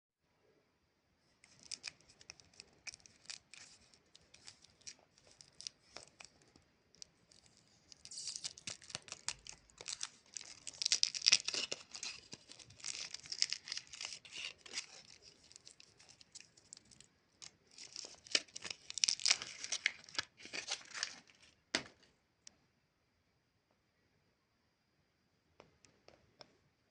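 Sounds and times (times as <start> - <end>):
plastic wrapper crinkling and tearing: 1.4 - 21.9.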